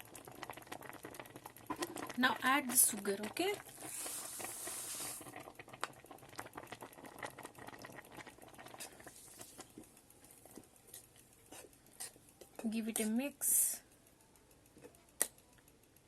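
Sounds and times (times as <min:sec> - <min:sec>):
milk bubbling at the boil: 0:00.0 - 0:16.0
short hiss: 0:03.9 - 0:05.2.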